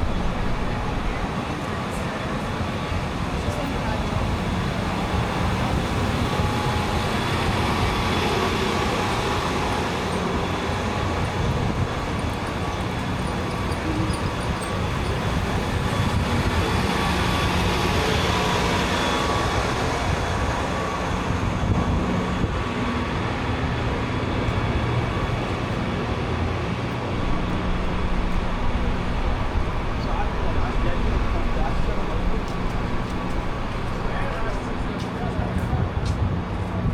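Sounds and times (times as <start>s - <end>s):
vehicles passing: 26.9s - 35.4s.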